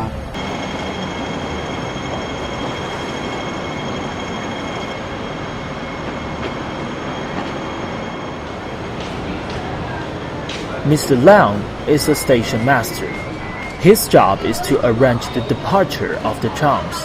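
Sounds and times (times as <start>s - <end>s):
high-pitched whine: 0.0s - 9.0s
tram rumbling on tracks: 0.0s - 17.0s.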